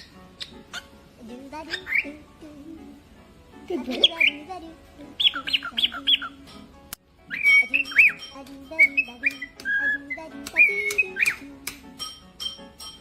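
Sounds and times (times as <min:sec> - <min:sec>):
cockatiel whistling and chirping: 0:00.0 - 0:01.0, 0:01.7 - 0:02.1, 0:05.2 - 0:06.4, 0:07.2 - 0:11.4.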